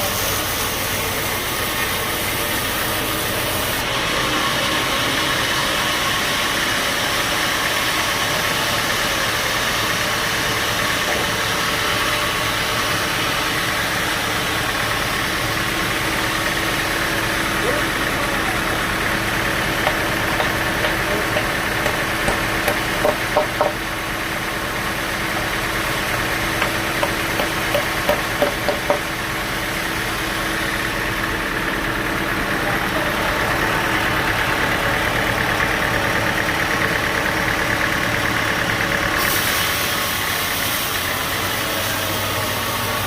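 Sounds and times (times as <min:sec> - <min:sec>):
sawmill machinery humming: 0:00.0 - 0:43.0
rapid knocks: 0:19.8 - 0:23.8, 0:26.6 - 0:29.0.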